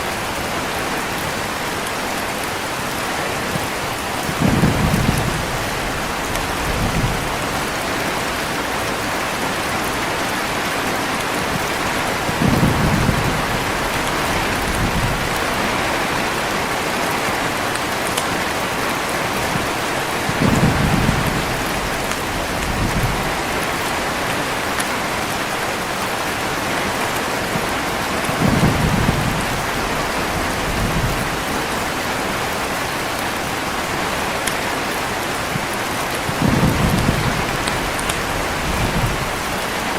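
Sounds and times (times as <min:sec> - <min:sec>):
heavy rain falling: 0:00.0 - 0:39.9
low rumbles of thunder: 0:04.2 - 0:09.1, 0:11.5 - 0:16.3, 0:20.2 - 0:24.0, 0:28.3 - 0:32.0, 0:35.6 - 0:39.9.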